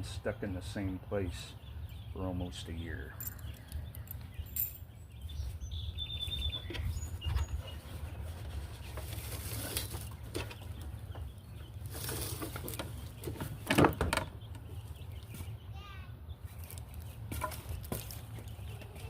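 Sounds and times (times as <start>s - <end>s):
birds chirping: 0.0s - 19.0s
wooden beehive scraping: 6.7s - 10.8s, 11.5s - 14.1s.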